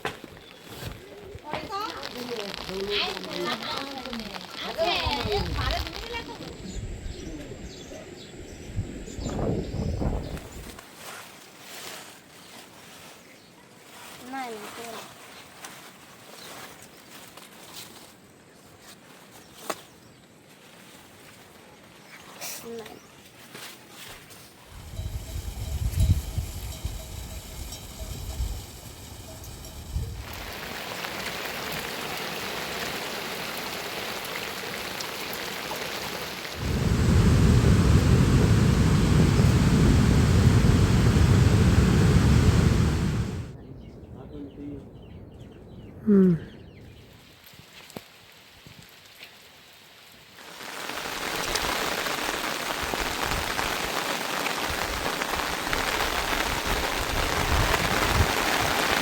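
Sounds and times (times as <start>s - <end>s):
rain falling: 1.3s - 6.7s, 24.7s - 43.6s, 47.1s - 59.0s
loud low rumble: 36.6s - 43.6s.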